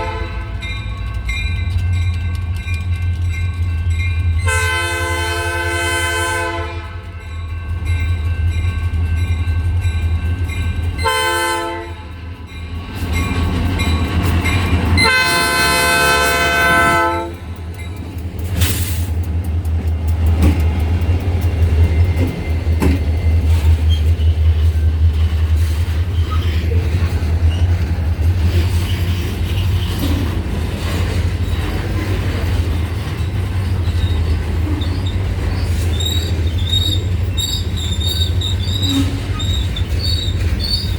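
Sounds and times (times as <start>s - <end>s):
locomotive air horn: 0.0s - 0.7s, 4.4s - 7.2s, 11.0s - 12.2s, 15.0s - 17.5s, 38.7s - 39.4s.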